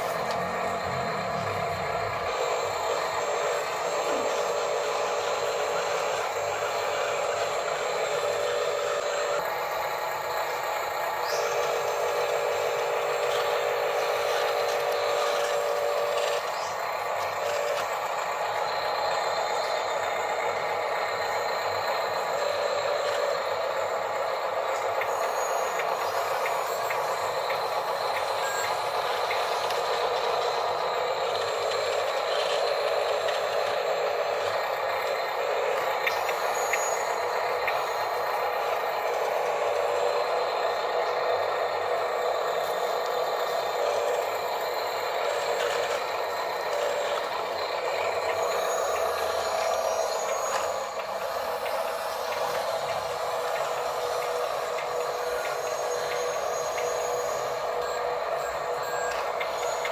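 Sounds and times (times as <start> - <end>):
small electric motors whirring: 0.0 - 59.9.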